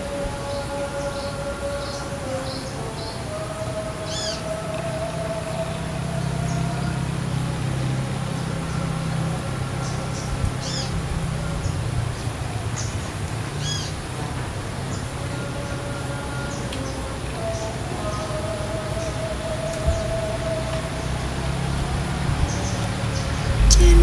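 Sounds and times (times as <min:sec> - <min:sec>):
low engine drone: 0:04.0 - 0:12.6, 0:22.8 - 0:24.0.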